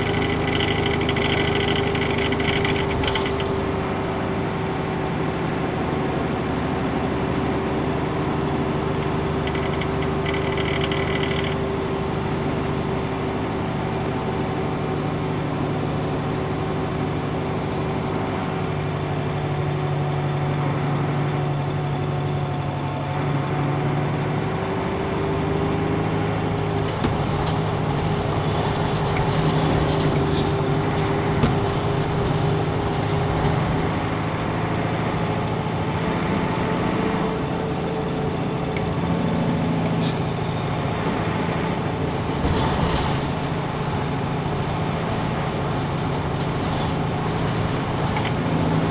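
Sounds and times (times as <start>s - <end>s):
rattles and clicks: 0.0s - 4.2s, 7.4s - 12.8s, 26.1s - 36.2s, 39.8s - 48.9s
bus diesel engine running: 0.0s - 48.9s.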